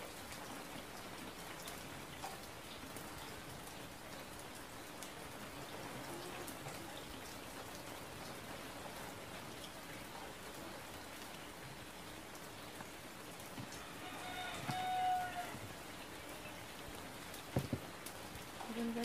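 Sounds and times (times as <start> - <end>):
knife taps on cutting board: 17.6 - 17.8.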